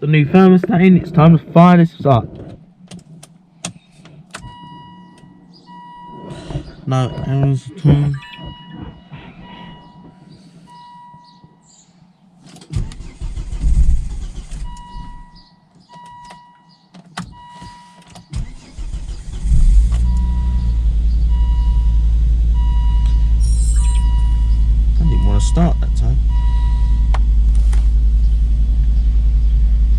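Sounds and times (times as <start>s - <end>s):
car engine cranking and starting: 0.2s - 11.8s, 12.4s - 29.9s
warning chime beeping: 4.5s - 11.7s, 22.6s - 27.1s.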